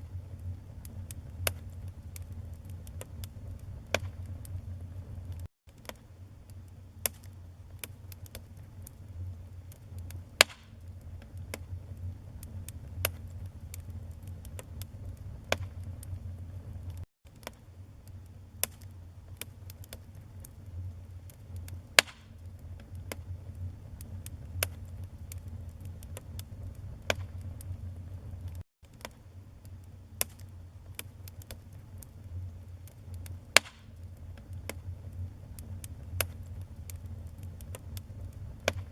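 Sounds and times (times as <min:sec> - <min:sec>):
low rumble of flames: 0:00.0 - 0:38.9
wood fire crackling: 0:00.0 - 0:38.9
sharp pops: 0:22.0 - 0:22.3.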